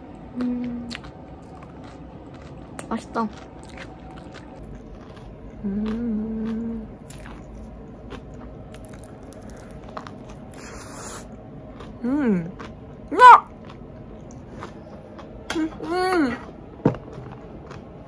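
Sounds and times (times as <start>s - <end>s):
person humming mmm: 0.3s - 1.0s, 5.6s - 7.0s
person chewing bread: 0.3s - 15.8s, 16.4s - 18.0s.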